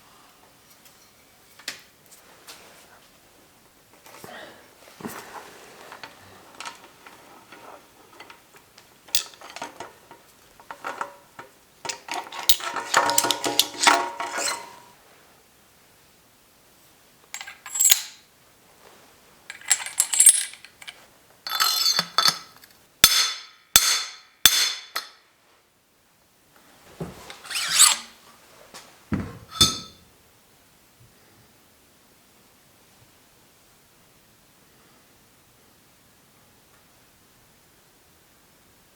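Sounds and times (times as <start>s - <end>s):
metal clinks and rattles: 9.1s - 9.9s, 11.9s - 14.8s, 17.4s - 18.2s, 19.5s - 22.6s, 29.5s - 30.0s
knocks: 29.1s - 30.0s
ringing metal: 29.5s - 30.0s.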